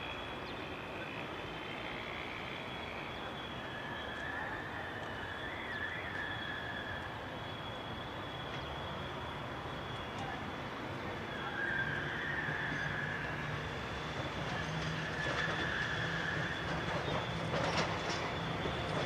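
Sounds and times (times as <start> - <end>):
electric train rumbling: 0.0 - 19.0
faint high whine: 0.0 - 19.0.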